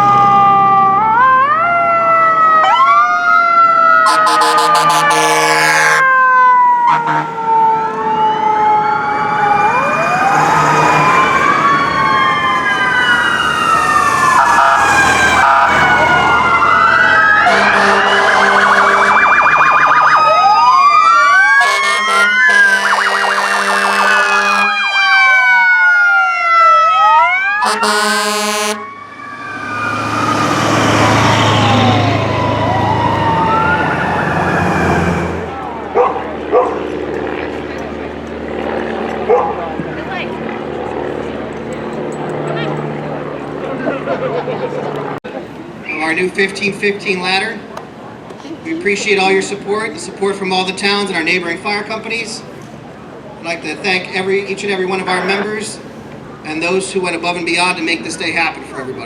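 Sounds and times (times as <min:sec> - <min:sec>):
fire truck sirens wailing: 0:00.0 - 0:59.0
long horn blasts: 0:04.0 - 0:06.1, 0:06.9 - 0:07.4, 0:17.4 - 0:19.3, 0:21.6 - 0:24.8, 0:27.6 - 0:31.6, 0:33.0 - 0:35.8.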